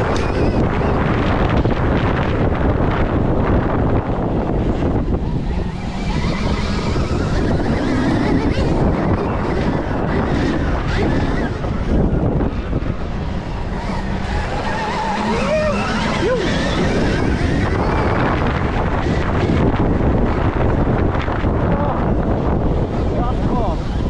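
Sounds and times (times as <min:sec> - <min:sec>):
electric dirt bike running: 0:00.0 - 0:24.0
wind rushing over microphone: 0:00.0 - 0:24.0.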